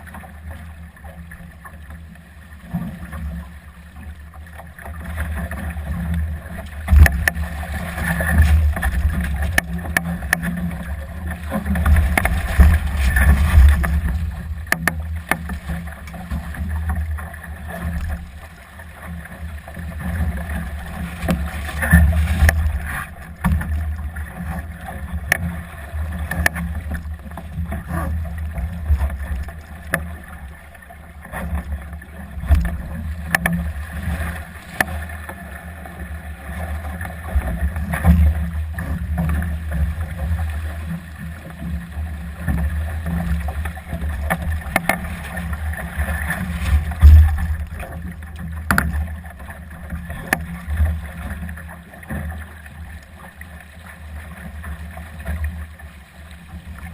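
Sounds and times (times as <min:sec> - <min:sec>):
water rushing past hull: 0:00.0 - 0:56.9
sharp clicks and knocks: 0:06.9 - 0:07.4, 0:11.7 - 0:16.2, 0:46.8 - 0:49.0.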